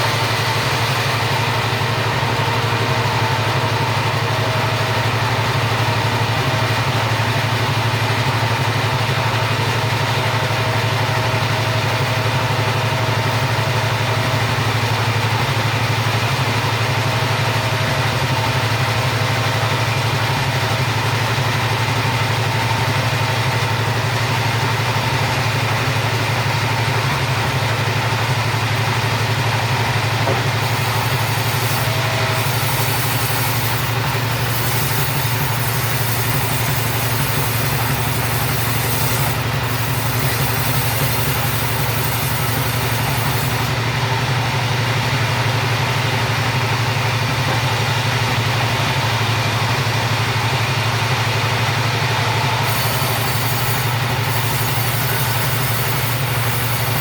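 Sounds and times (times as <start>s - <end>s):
chainsaw sawing through timber: 0.0s - 2.9s, 29.9s - 43.9s, 52.2s - 57.0s.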